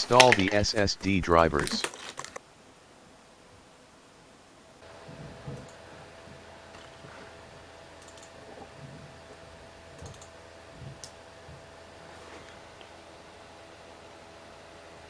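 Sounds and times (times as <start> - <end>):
steady electrical hum: 0.0 - 15.0
computer mouse clicks: 5.4 - 5.8, 8.0 - 8.4, 10.0 - 10.3.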